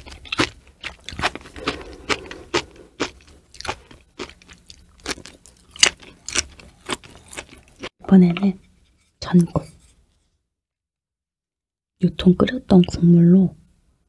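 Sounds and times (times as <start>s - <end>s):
crunchy chewing: 0.0s - 8.5s.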